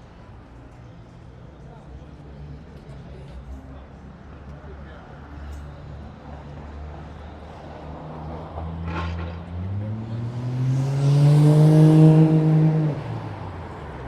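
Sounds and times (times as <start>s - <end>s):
engine accelerating hard: 9.6s - 13.3s.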